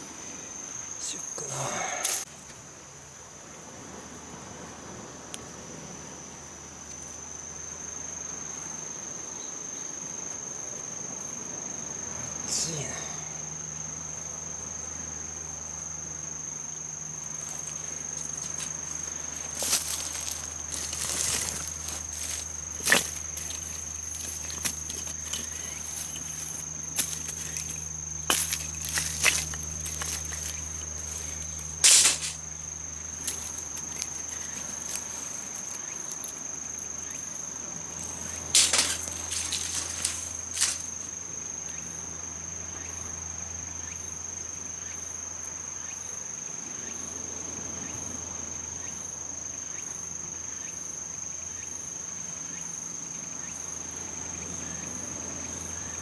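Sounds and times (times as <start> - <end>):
insects shrilling: 0.6 - 2.5, 16.3 - 42.0
handling clicks and rustles: 17.4 - 32.5, 33.2 - 36.4, 38.0 - 41.1.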